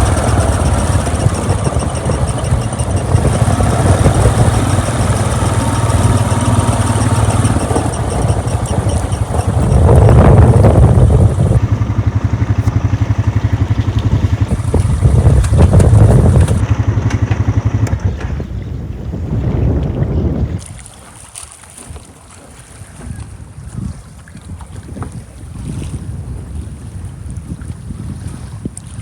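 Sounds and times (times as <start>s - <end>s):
vehicle engine running: 0.0s - 18.6s.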